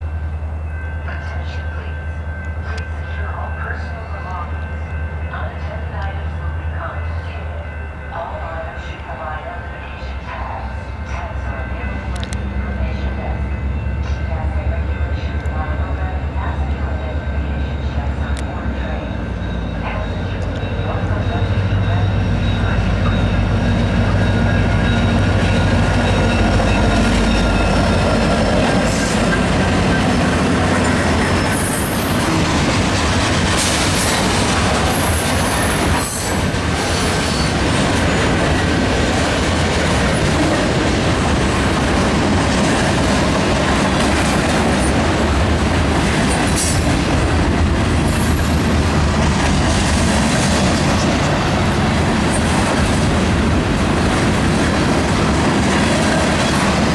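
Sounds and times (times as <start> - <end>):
locomotive engine hum: 0.0 - 56.9
wheels clacking over rail joints: 18.1 - 56.9
high wheel squeals: 30.9 - 34.3.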